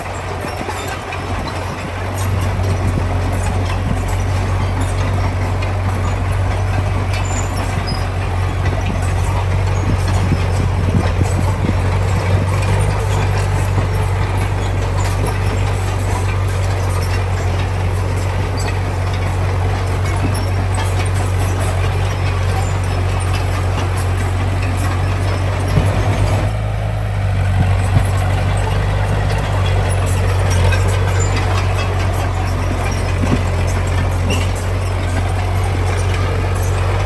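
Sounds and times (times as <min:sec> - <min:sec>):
heavy diesel engine droning: 0:00.0 - 0:37.0.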